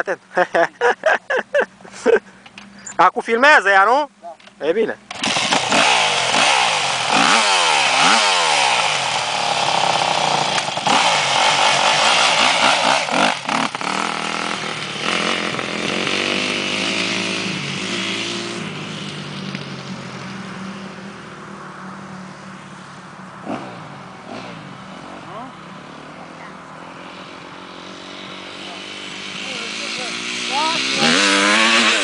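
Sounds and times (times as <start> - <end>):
motorcycle engine revving: 4.5 - 32.0.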